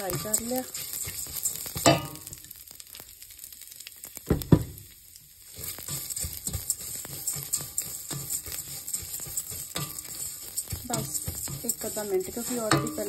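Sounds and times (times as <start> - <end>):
spoon scraping pot: 0.0 - 2.4, 5.5 - 13.0
noodles sizzling in fat: 0.0 - 13.0
spoon clattering against pot: 0.1 - 2.4, 5.8 - 13.0.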